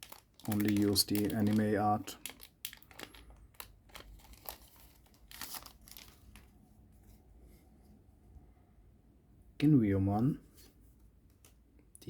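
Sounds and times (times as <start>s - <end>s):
cards rustling: 0.0s - 6.5s
wrapper crinkling and tearing: 0.0s - 6.5s.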